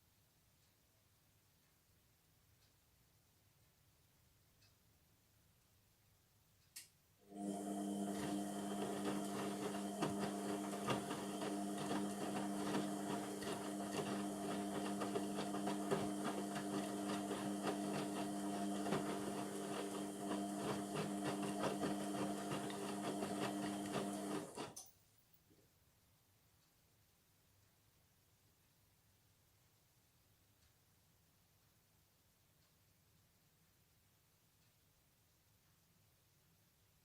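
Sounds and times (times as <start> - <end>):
washing machine humming and rattling: 7.3 - 24.8.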